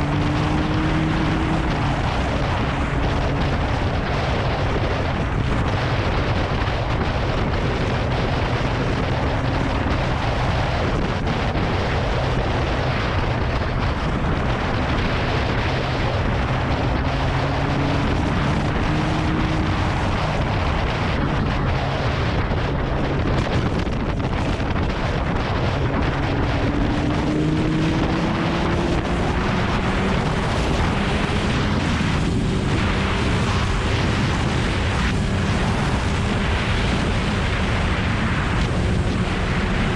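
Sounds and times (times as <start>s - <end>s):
motorcycle engine under way: 0.0s - 10.4s, 11.0s - 21.5s, 22.4s - 39.9s
wind buffeting microphone: 0.0s - 39.9s.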